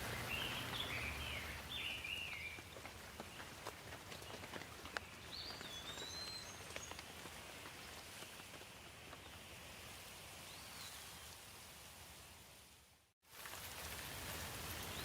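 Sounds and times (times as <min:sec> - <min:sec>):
bird whistled calls: 0:00.0 - 0:02.6, 0:05.3 - 0:06.6
light rain: 0:00.0 - 0:15.0.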